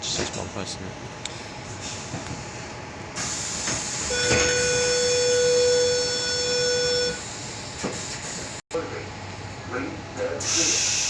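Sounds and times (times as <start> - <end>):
door-closing warning tone: 4.0 - 7.3.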